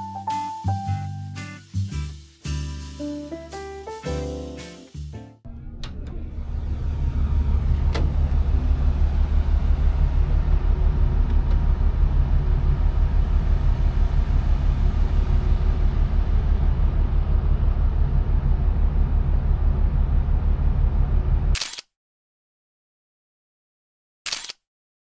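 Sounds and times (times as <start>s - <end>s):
ferry low rumble fluttering: 5.5s - 21.6s.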